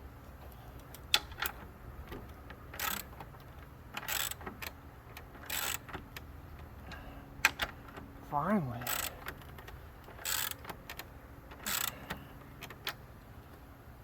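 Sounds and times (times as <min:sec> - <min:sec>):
hand ratchet pawl clicking: 0:02.7 - 0:03.1, 0:03.9 - 0:06.2, 0:08.8 - 0:12.0.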